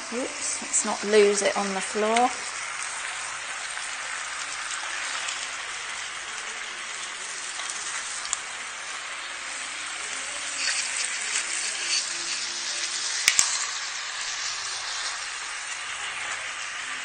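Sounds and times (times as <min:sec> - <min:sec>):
chicken sizzling in oil: 0:00.0 - 0:17.0
faint clicks of turning pieces: 0:07.5 - 0:08.4, 0:10.4 - 0:13.7.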